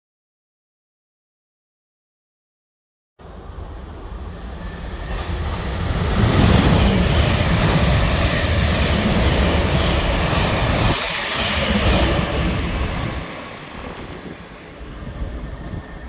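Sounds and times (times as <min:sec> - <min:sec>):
train passing with rumbling wheels: 0:03.2 - 0:16.0.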